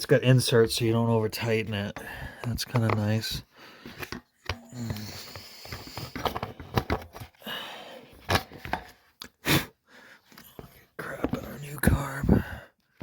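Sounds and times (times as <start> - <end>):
hand tools clicking and tapping: 2.0 - 3.2.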